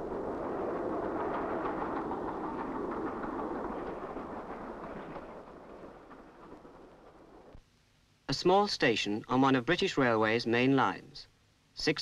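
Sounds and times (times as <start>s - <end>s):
train rumbling past: 0.0s - 7.6s.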